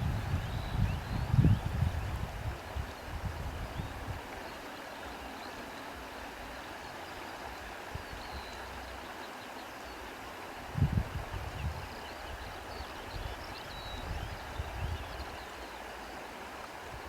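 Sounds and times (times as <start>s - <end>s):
wind buffeting microphone: 0.0s - 4.2s, 10.6s - 15.4s
wind blowing: 0.0s - 4.3s, 10.6s - 13.4s.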